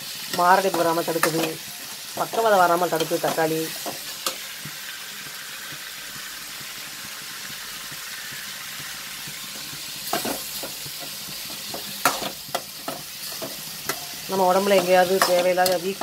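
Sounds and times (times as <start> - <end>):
onions and tomatoes sizzling: 0.0 - 16.0
metal spoon scraping pan: 9.5 - 16.0.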